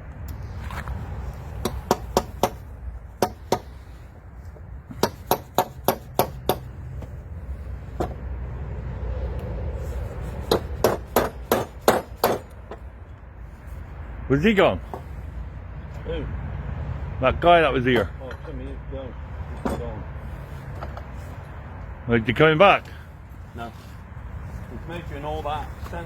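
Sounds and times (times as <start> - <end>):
hammer blows: 1.5 - 4.0, 4.9 - 7.1.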